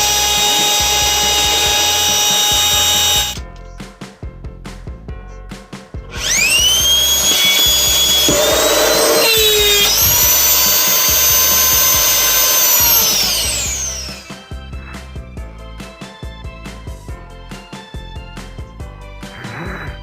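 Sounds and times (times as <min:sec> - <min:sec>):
vacuum cleaner motor whining: 0:00.0 - 0:03.4, 0:06.1 - 0:14.4.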